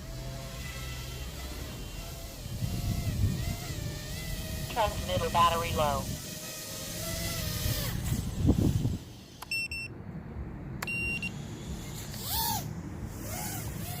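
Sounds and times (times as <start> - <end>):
steady low rumble: 4.6 - 6.2
radio transmitter beeps: 4.7 - 6.0.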